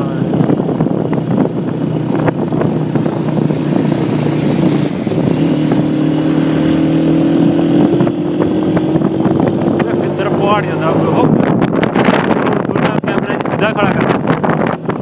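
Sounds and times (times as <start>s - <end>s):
motorcycle engine running: 0.0s - 15.0s
wind noise: 0.0s - 15.0s.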